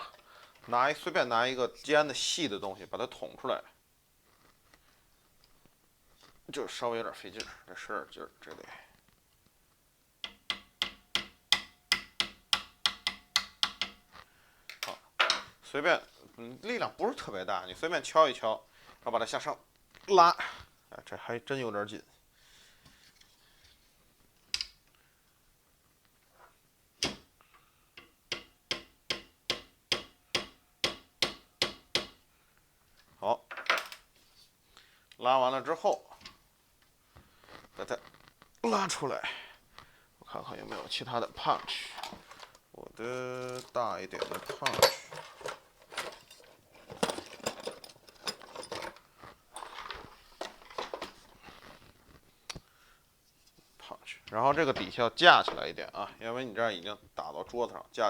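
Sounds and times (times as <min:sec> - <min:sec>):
metal tools clinking: 0:41.6 - 0:42.6, 0:43.4 - 0:51.6.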